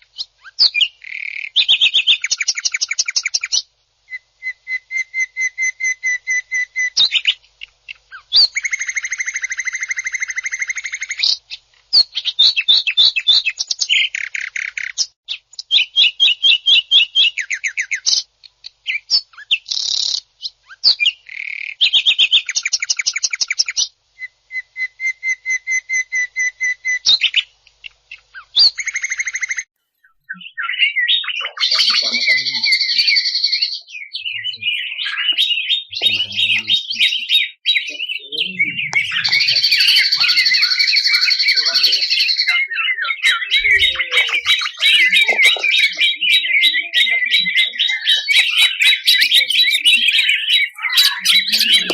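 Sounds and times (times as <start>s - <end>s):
bird singing rattling trills: 0.1s - 18.2s, 18.9s - 51.9s.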